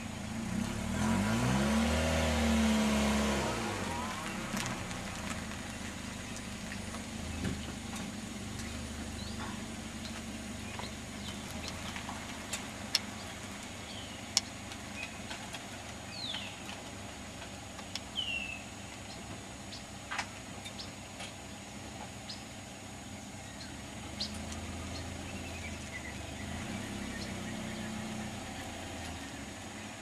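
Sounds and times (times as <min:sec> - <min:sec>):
car engine rumble: 0:00.0 - 0:30.0
bird chirps: 0:08.4 - 0:15.3, 0:16.0 - 0:16.7, 0:17.9 - 0:19.9, 0:22.2 - 0:30.0.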